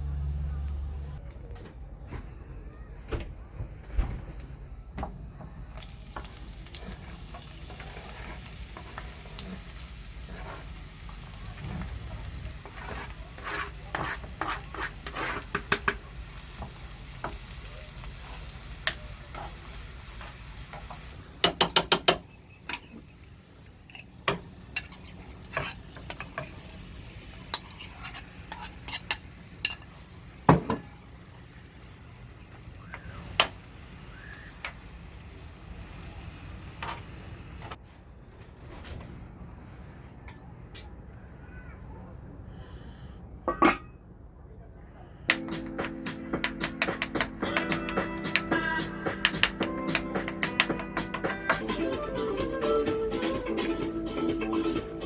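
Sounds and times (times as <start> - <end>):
food sizzling in a frying pan: 5.7 - 11.6, 15.5 - 22.0
utensil stirring and tapping pan: 5.8 - 11.3, 12.5 - 17.6, 18.2 - 23.0, 45.3 - 52.3.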